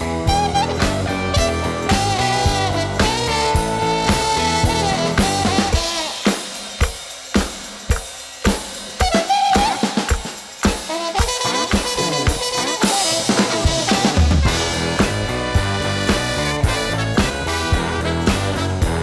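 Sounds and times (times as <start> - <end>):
held pitched notes: 0.0 - 6.2, 11.0 - 19.0
drum kit beat: 0.0 - 19.0.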